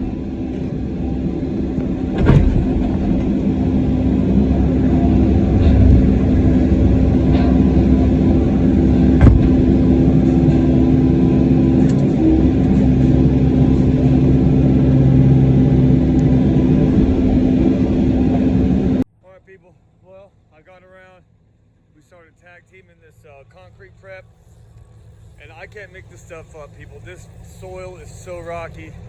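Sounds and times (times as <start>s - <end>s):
excavator diesel engine running: 0.0s - 19.0s
sharp knocks: 2.1s - 3.3s, 9.2s - 9.8s.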